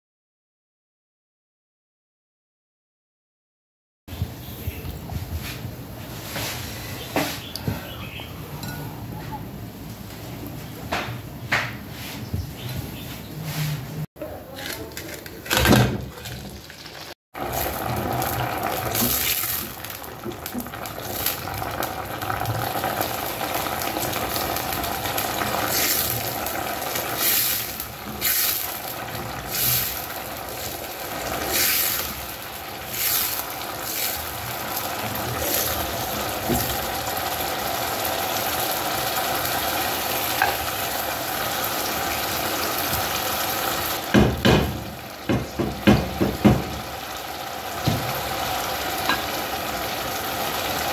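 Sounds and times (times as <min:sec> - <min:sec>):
paste sizzling in hot oil: 0:16.7 - 0:50.9.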